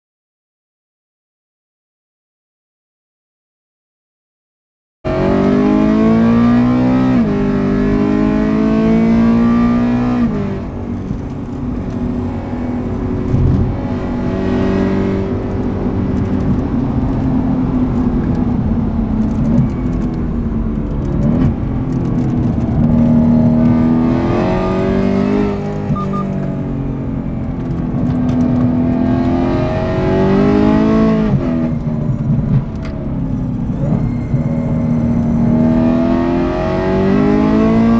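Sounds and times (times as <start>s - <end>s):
car engine revving hard: 5.1s - 10.6s, 13.2s - 15.4s, 22.8s - 26.2s, 28.7s - 31.7s, 35.4s - 37.9s.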